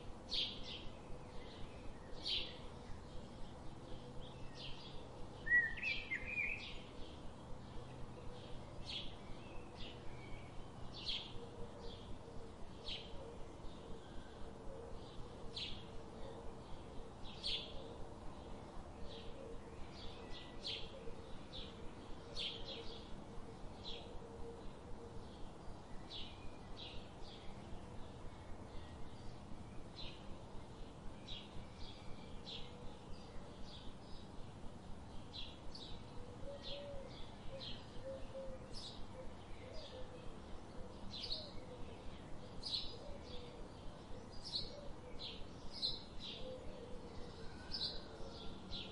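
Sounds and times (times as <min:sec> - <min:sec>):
small birds chirping: 0:16.7 - 0:48.9.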